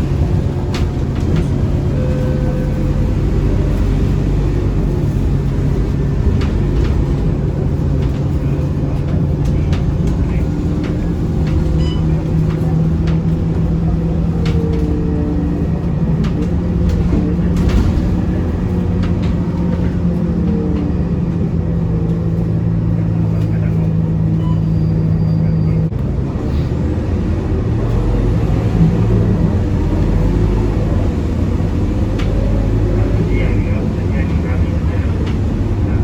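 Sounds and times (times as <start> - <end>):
interior clicks and rattles: 0.0 - 24.4
bus diesel engine running: 0.0 - 36.0.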